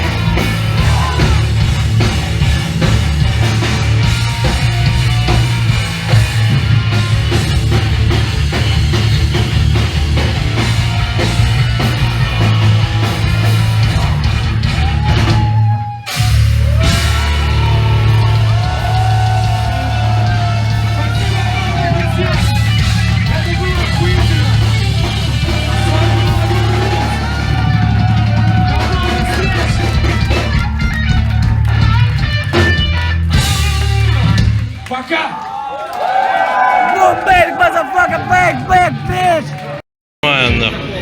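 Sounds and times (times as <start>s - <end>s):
distorted guitars: 0.0s - 15.2s
bass guitar: 0.0s - 34.8s
drums: 0.0s - 39.7s.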